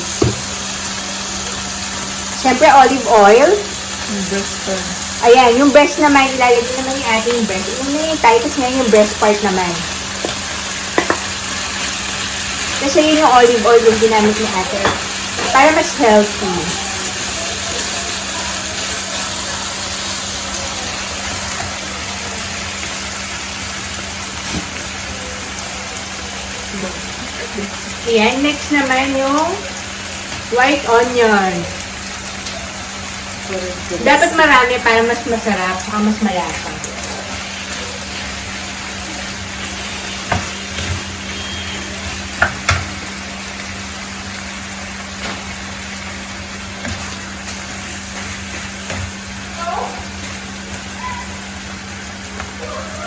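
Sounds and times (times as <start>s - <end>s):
chicken sizzling in oil: 0.0s - 53.0s
utensil knocking against pan: 0.2s - 0.5s, 11.0s - 11.2s, 14.8s - 15.6s.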